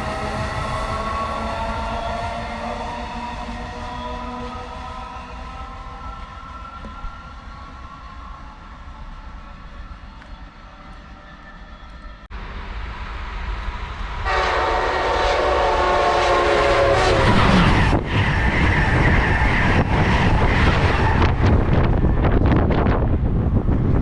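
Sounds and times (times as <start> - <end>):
train horn: 0.0 - 6.1, 14.2 - 19.8
train wheel and rail noise: 0.0 - 24.0.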